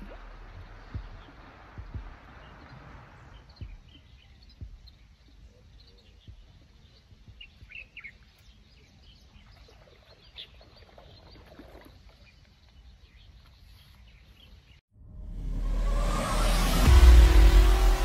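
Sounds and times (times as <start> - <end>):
small birds chirping: 0.0 - 14.8
outdoor background noise: 0.0 - 18.0
loud rising sound: 15.0 - 18.0.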